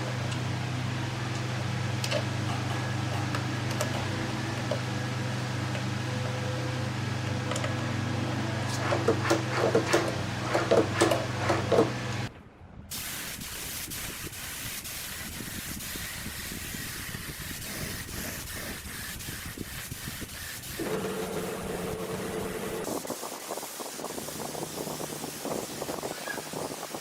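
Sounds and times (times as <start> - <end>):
steady hiss: 12.9 - 27.0
steady low hum: 19.8 - 23.0.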